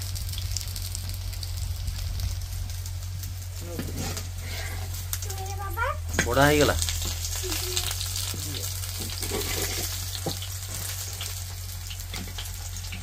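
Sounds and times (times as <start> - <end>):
fritters sizzling in oil: 0.0 - 13.0
metal spatula scraping pan: 3.8 - 4.9, 9.0 - 10.9.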